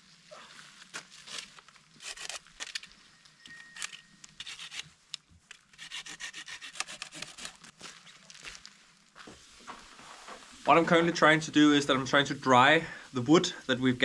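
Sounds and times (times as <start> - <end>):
hand saw cutting wood: 4.4 - 4.8, 5.7 - 7.6.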